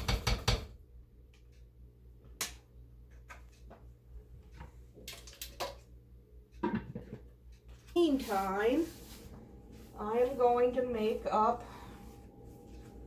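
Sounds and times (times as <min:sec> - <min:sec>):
faint low hum: 0:05.8 - 0:13.0.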